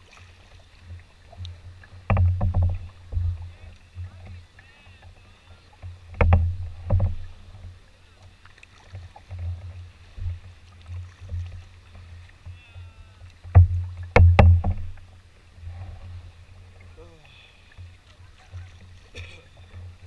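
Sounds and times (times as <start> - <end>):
knocks on a canoe: 1.8 - 7.7, 11.1 - 15.2.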